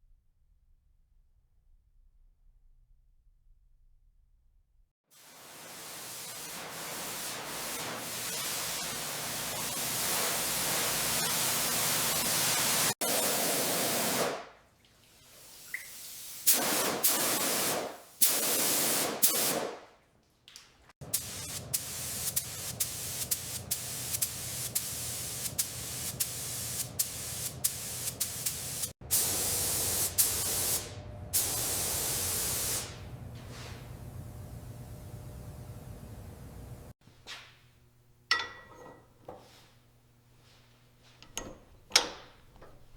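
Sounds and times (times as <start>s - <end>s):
loud hissing spray: 21.2s - 33.0s.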